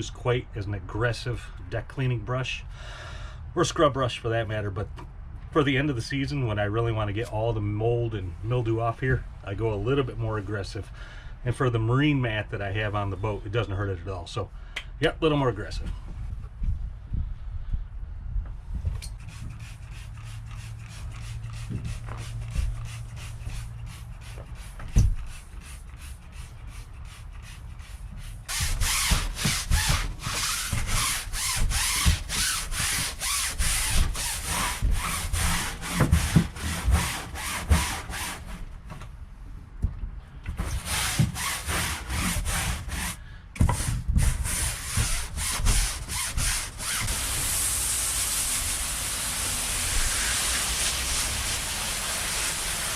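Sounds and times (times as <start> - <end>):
scrub brush scrubbing mat: 19.2 - 38.4.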